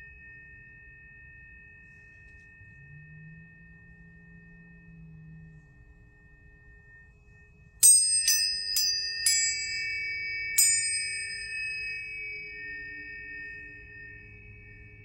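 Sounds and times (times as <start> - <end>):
tuning forks struck ringing: 0.0 - 15.0.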